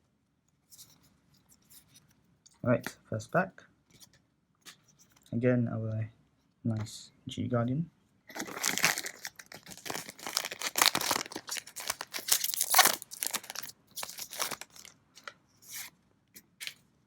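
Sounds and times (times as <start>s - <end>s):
wrapper tearing and crinkling: 8.3s - 15.0s.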